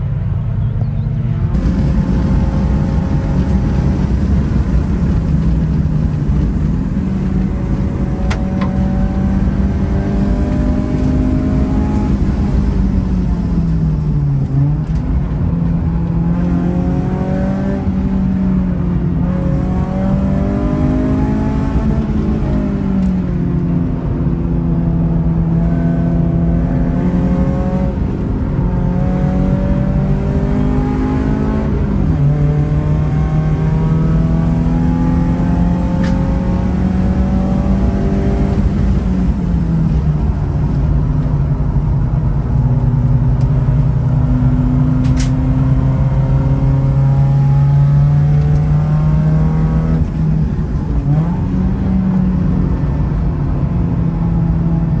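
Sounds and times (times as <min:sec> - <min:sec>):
car engine revving hard: 0:01.6 - 0:13.1, 0:15.9 - 0:22.8, 0:24.6 - 0:39.7, 0:43.9 - 0:53.0.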